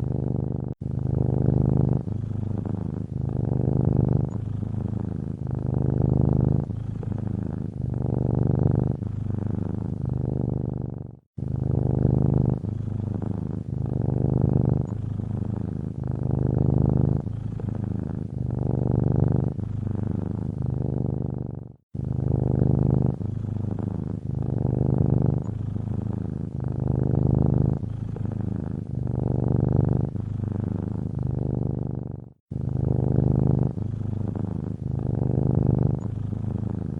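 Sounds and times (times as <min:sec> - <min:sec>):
cat purring: 0:00.0 - 0:36.9.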